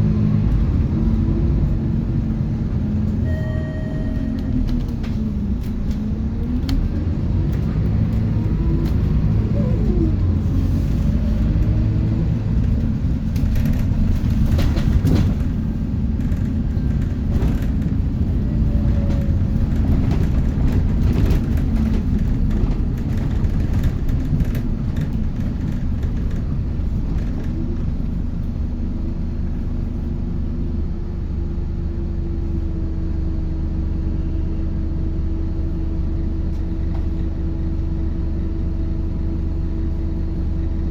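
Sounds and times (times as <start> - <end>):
bus body rattling: 0.0 - 30.8
bus diesel engine: 0.0 - 40.9
deep road rumble: 0.0 - 40.9.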